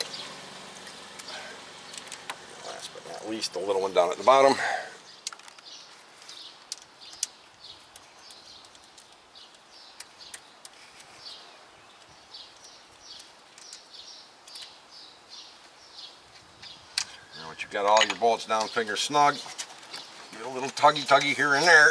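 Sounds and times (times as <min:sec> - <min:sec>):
small bird chirping: 0:05.0 - 0:21.9.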